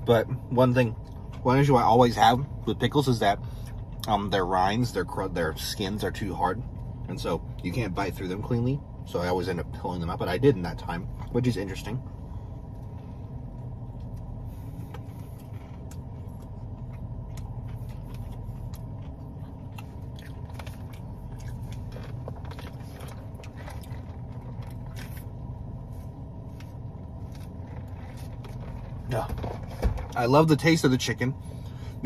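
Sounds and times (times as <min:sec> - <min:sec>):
steady low hum: 0:00.0 - 0:32.0
man chewing crispy food: 0:12.5 - 0:30.1.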